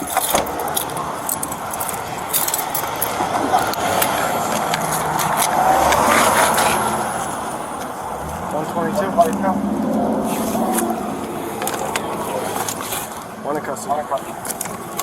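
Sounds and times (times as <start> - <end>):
metal gear jingling: 0.0 - 4.0
vehicle rushing: 0.0 - 13.7.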